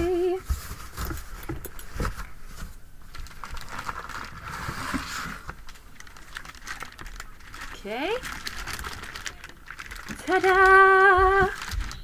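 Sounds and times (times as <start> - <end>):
packaging rustling: 0.0 - 12.0
packaging clicks and knocks: 3.2 - 12.0.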